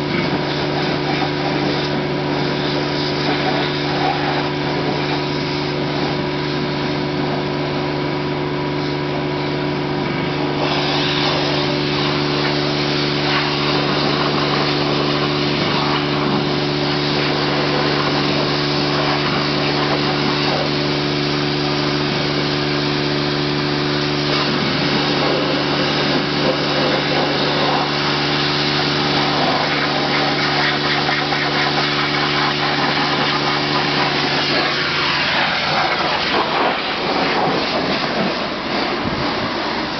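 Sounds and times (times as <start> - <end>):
motor hum: 0.0 - 39.9
loud rushing hiss: 10.2 - 39.9.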